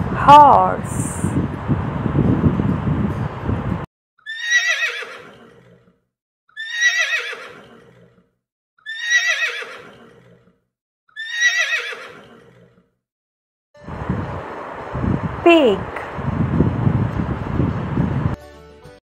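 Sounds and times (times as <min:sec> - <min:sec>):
horse whinnying: 0:04.2 - 0:12.9
rush of noise: 0:13.8 - 0:18.3.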